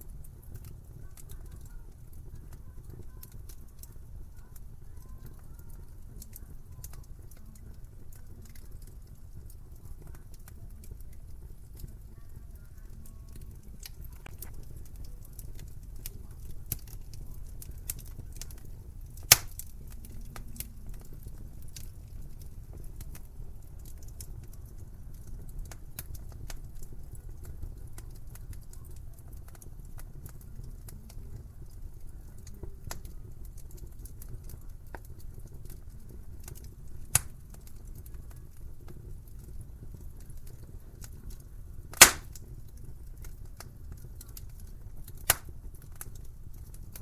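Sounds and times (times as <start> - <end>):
wood fire crackling: 0.0 - 47.0
sharp fire pops: 13.0 - 47.0.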